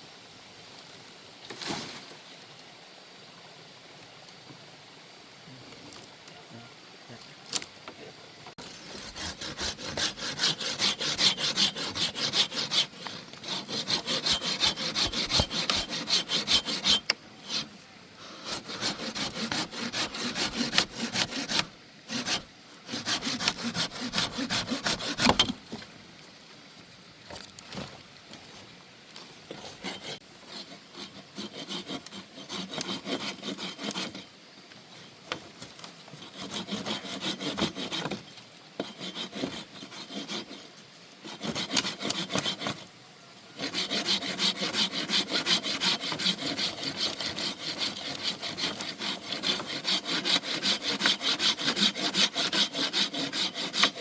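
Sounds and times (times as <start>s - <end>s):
hand saw cutting wood: 8.6s - 17.8s, 18.4s - 25.6s, 29.5s - 34.3s, 34.9s - 54.0s.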